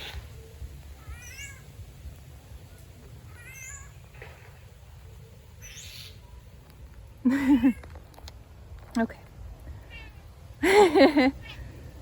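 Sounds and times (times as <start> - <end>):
bird high chirp: 5.1 - 6.4.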